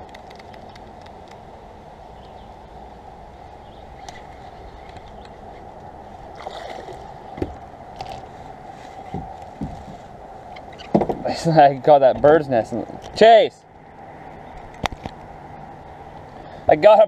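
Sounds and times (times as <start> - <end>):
water sloshing against kayak hull: 4.0 - 11.3.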